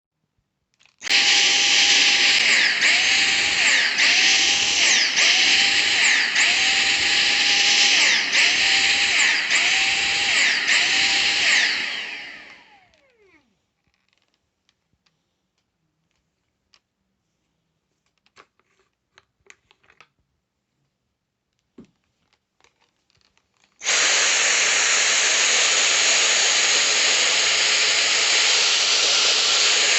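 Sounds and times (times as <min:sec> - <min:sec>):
vacuum motor pulsing whine: 0:01.1 - 0:13.2, 0:23.8 - 0:29.9.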